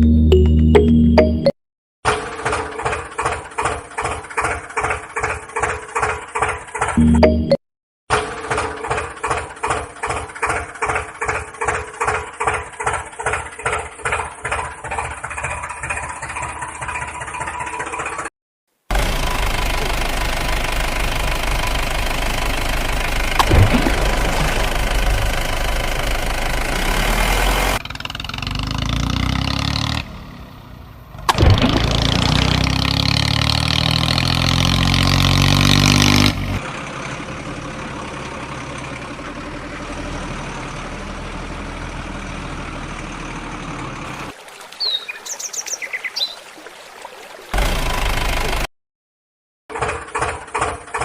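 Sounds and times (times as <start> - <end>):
small engine running: 2.1 - 7.0, 8.1 - 18.3, 18.9 - 30.1, 31.2 - 44.3, 47.6 - 48.7.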